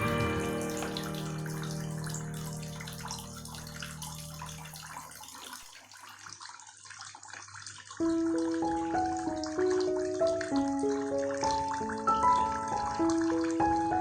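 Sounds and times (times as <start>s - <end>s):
held music chord: 0.0s - 4.4s
water trickling down small waterfall: 0.0s - 14.0s.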